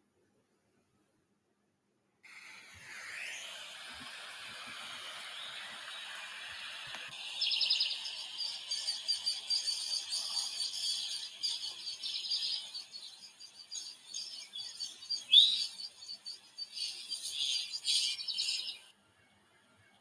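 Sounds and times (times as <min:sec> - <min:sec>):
chorus of birds: 0:02.9 - 0:18.9
insects: 0:03.2 - 0:18.9
fast high bird trill: 0:07.2 - 0:18.8.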